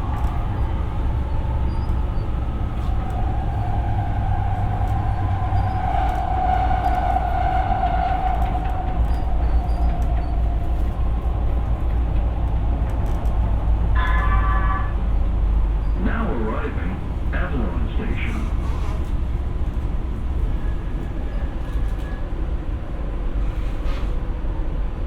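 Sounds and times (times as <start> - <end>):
wheels rumbling on rail: 0.0 - 25.0
station announcement: 13.8 - 19.0.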